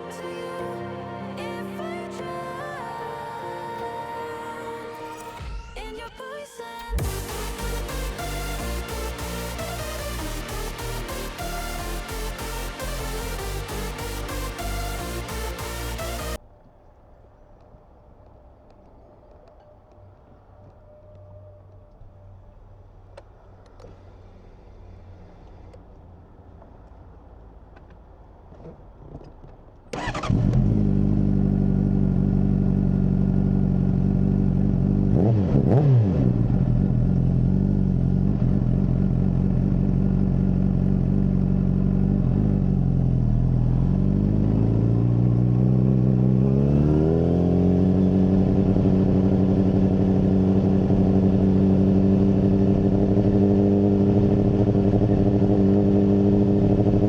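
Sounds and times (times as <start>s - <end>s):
motorcycle engine starting and revving: 7.0s - 16.4s, 29.9s - 57.0s.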